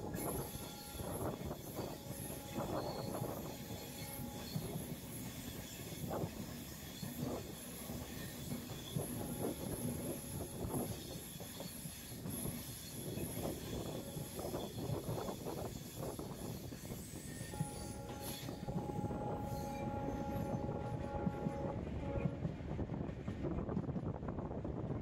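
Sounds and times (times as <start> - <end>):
thin high whine: 0.0 - 6.3, 17.2 - 22.4
train wheels clattering on rails: 0.0 - 25.0.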